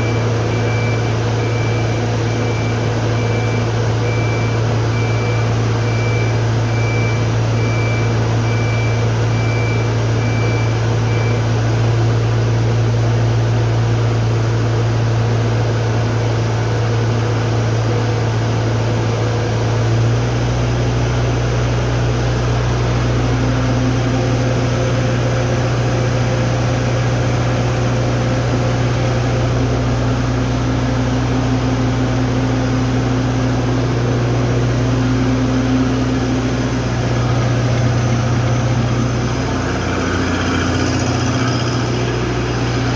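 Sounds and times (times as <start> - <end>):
hydraulic machinery humming: 22.2 - 42.9.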